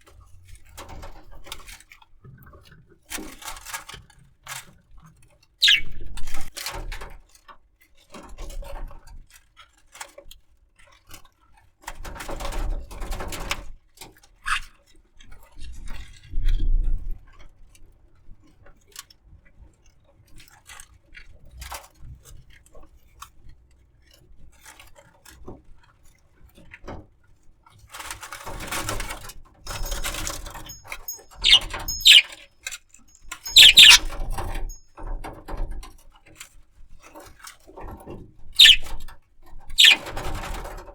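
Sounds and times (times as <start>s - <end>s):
short high bird chirps: 5.6s - 6.0s, 29.8s - 32.3s, 33.4s - 34.1s, 38.6s - 38.9s, 39.8s - 40.0s
bird rustling and scratching: 29.7s - 32.3s, 33.5s - 34.2s, 38.6s - 38.9s, 39.8s - 40.8s.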